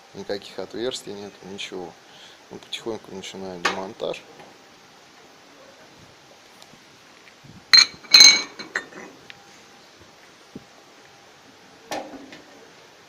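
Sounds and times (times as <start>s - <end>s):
cast iron stove rings clanking: 7.8s - 8.9s.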